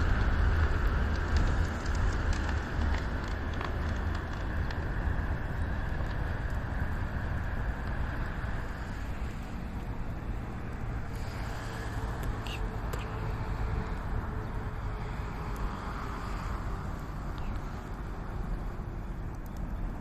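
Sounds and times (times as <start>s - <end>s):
fire rushing and crackling: 0.0s - 20.0s.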